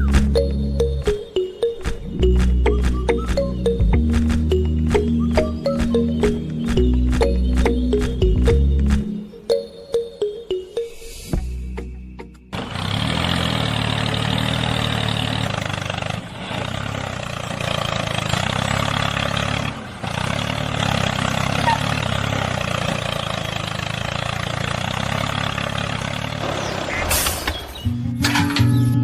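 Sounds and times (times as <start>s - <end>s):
engine-like motor noise: 12.5s - 27.8s.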